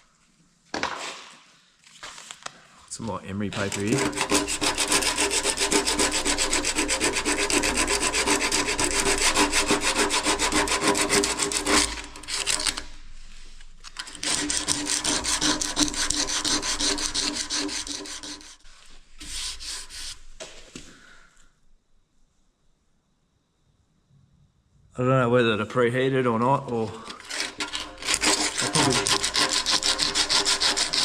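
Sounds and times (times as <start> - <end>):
emery paper rubbing on metal: 3.5 - 20.3, 27.1 - 31.0.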